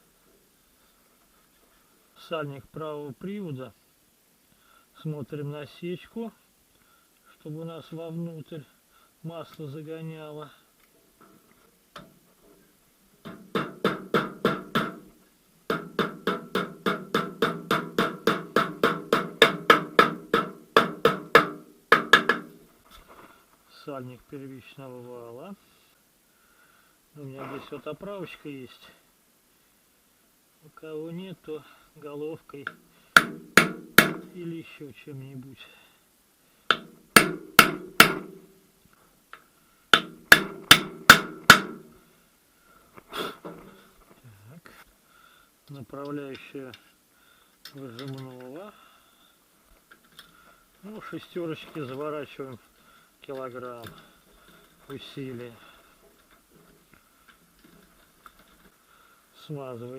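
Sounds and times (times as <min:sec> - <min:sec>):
hammer tapping metal seal: 0:15.7 - 0:22.5, 0:36.7 - 0:38.4, 0:40.0 - 0:41.8.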